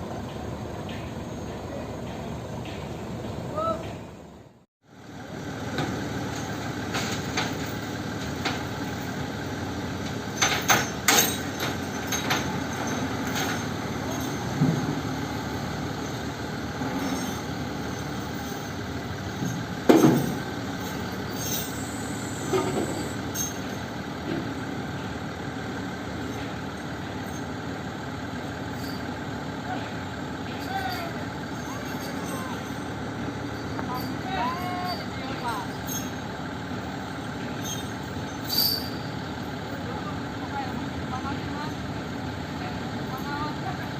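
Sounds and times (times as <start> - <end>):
truck engine running: 0.0 - 43.9
sharp metal clanks: 10.1 - 15.2, 16.0 - 24.5, 30.5 - 36.3.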